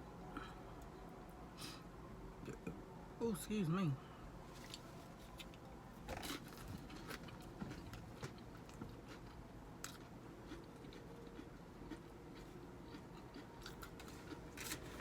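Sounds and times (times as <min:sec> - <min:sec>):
food crunching: 0:04.6 - 0:15.0
person chewing: 0:06.1 - 0:15.0.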